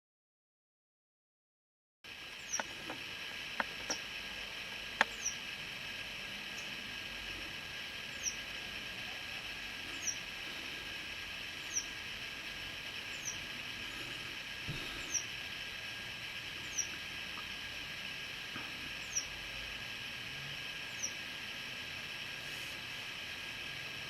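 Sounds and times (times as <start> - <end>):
steady hiss: 2.0 - 24.0
bird chicks peeping: 2.4 - 3.0, 5.0 - 5.4, 8.0 - 8.5, 9.8 - 10.7, 11.5 - 12.1, 12.8 - 15.4, 16.6 - 17.0, 18.9 - 19.4, 20.9 - 21.2.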